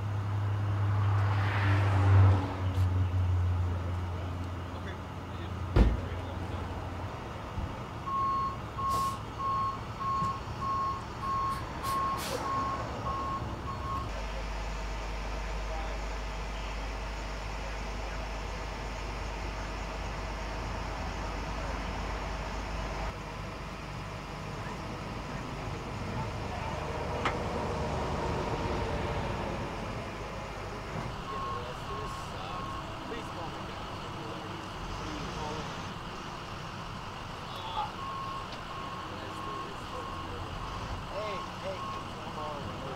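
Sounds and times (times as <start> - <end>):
low engine rumble: 0.0 - 42.9
backup alarm beeping: 8.1 - 14.1, 31.2 - 33.0.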